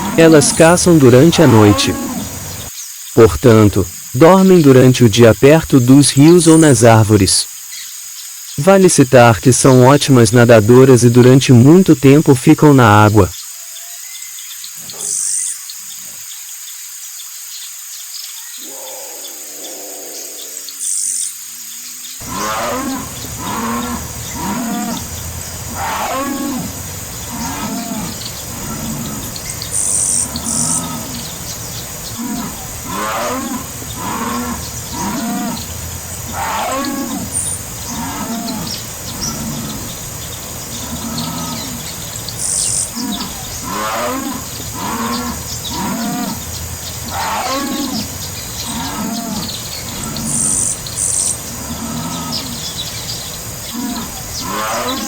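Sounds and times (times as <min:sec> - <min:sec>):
jaguar grunting roar: 0:00.0 - 0:02.7, 0:22.2 - 0:55.0.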